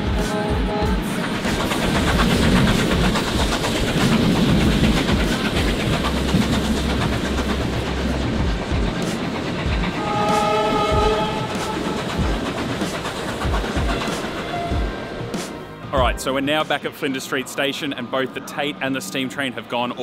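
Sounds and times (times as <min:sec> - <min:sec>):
train wheels rumbling on rails: 0:00.0 - 0:20.0
wheels clicking and clattering: 0:01.1 - 0:14.8.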